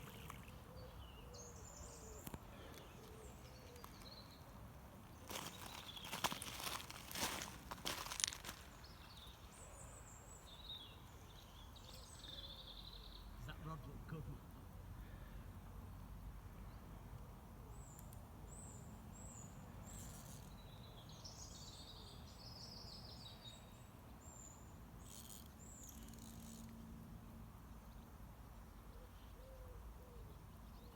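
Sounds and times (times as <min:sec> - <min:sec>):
songbirds calling: 0:00.0 - 0:15.5, 0:17.6 - 0:26.9, 0:27.6 - 0:30.9
footsteps through brush: 0:05.1 - 0:09.2.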